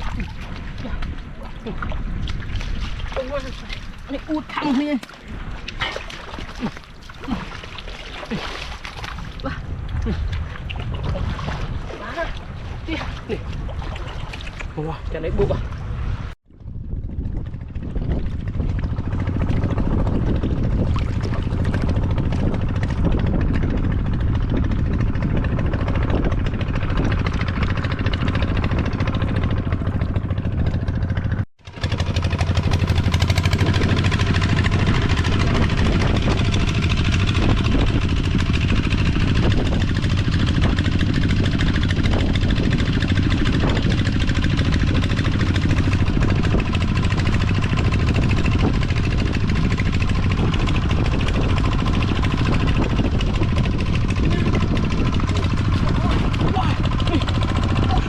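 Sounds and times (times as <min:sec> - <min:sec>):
small engine humming: 0:21.4 - 0:58.0.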